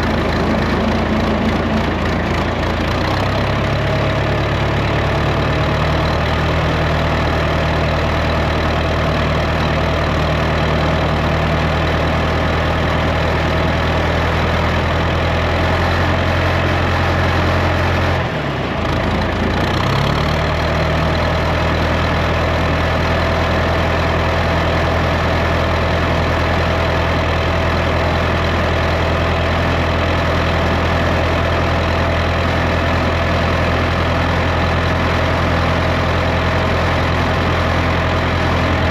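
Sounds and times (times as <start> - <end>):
farm machinery engine running: 0.0 - 38.9.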